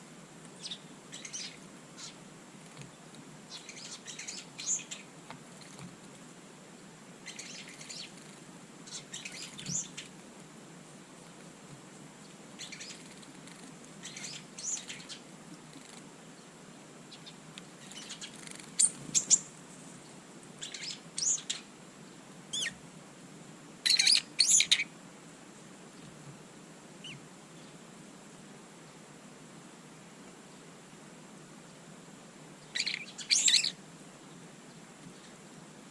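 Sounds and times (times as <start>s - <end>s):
small birds chirping: 0.4s - 10.2s, 12.1s - 22.8s, 23.8s - 24.9s, 27.0s - 27.8s, 32.6s - 35.6s.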